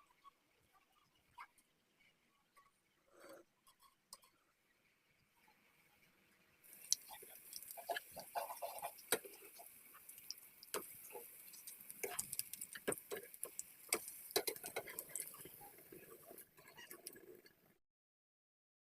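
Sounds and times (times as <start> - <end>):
patties frying in hot oil: 6.6 - 17.8.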